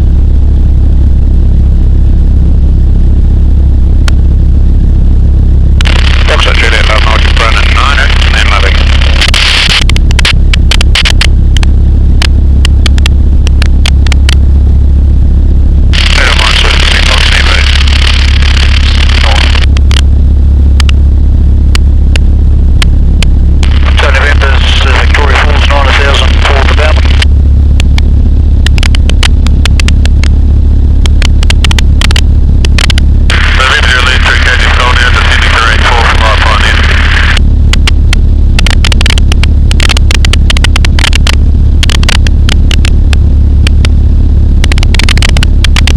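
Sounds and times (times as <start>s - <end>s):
aircraft engine droning: 0.2s - 45.9s
sharp irregular clicks: 5.8s - 14.4s, 16.0s - 20.1s, 25.8s - 30.4s, 31.0s - 44.0s, 44.6s - 45.9s.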